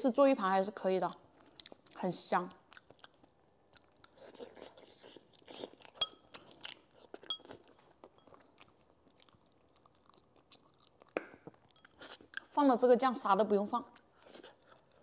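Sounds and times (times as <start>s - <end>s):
person chewing: 1.3s - 2.0s, 2.6s - 12.5s, 14.0s - 15.0s
chopsticks clinking on bowl: 6.0s - 6.4s, 7.2s - 8.4s, 11.7s - 12.1s.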